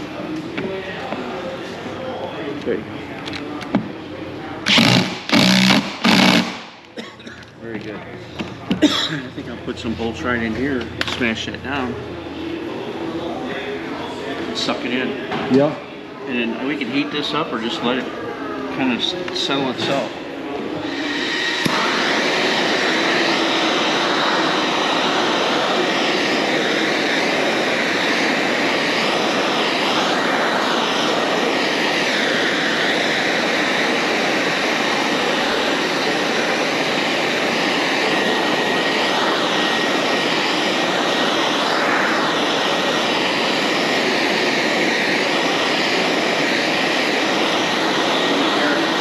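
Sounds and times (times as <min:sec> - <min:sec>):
heat gun blowing: 0:04.7 - 0:07.0, 0:20.8 - 0:49.0.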